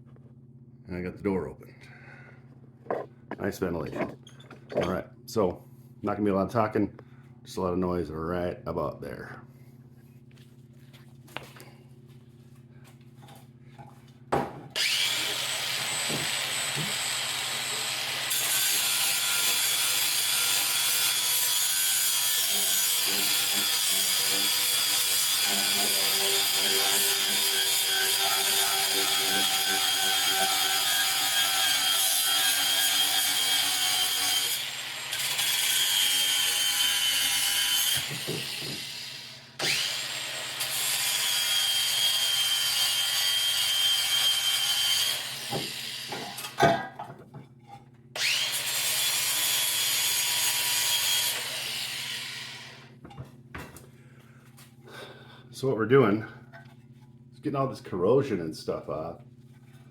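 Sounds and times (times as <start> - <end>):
rough scraping on metal: 2.9 - 4.9
power tool motor whine: 14.8 - 19.5, 38.0 - 42.5, 48.2 - 49.7.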